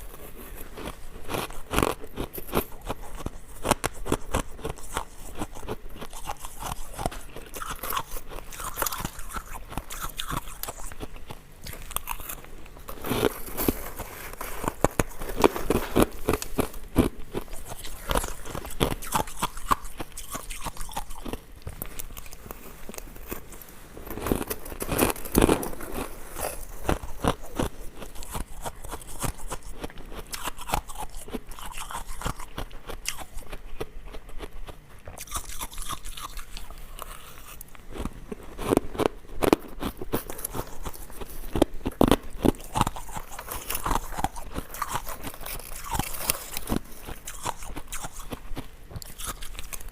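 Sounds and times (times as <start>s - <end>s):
chewing ice cubes crunching: 0.0s - 49.9s.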